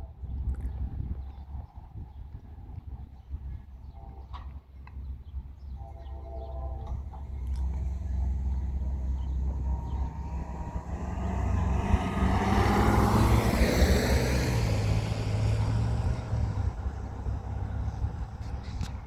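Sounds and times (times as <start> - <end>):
vehicle passing by: 7.0 - 19.0.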